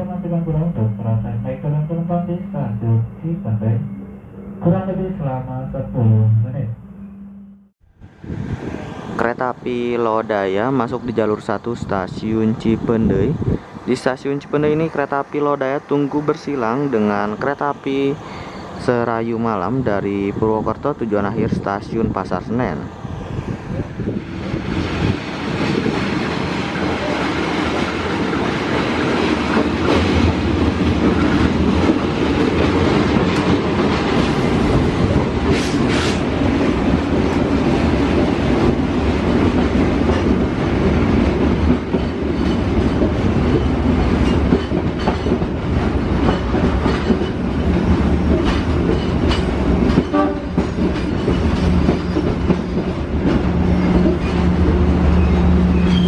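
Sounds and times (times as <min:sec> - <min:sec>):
train rumble: 0:07.9 - 0:56.0
train wheels clattering over joints: 0:24.8 - 0:55.0.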